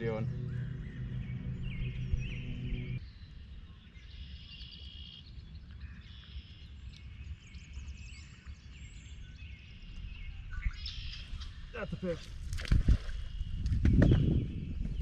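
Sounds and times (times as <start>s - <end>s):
background music: 0.0s - 3.0s
low steady rumble: 0.0s - 3.0s
songbirds calling and trilling: 0.0s - 15.0s.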